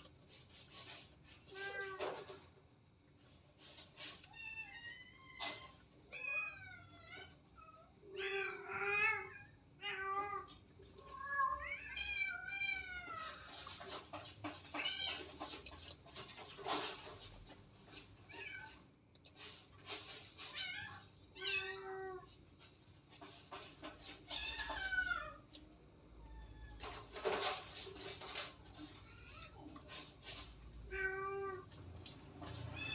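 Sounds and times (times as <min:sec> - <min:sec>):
cat meowing: 0:30.8 - 0:31.8, 0:32.4 - 0:32.9.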